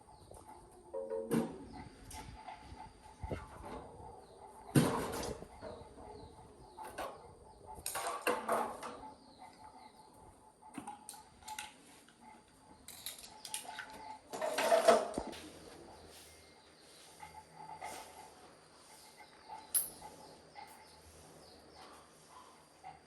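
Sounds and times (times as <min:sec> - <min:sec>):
metal parts clinking: 0:12.8 - 0:14.8, 0:19.7 - 0:20.0.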